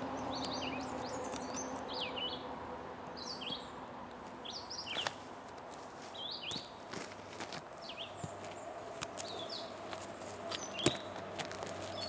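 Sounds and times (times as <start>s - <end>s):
small songbirds chirping: 0.0s - 12.0s
sharp rustling click: 4.2s - 5.9s, 6.5s - 12.0s.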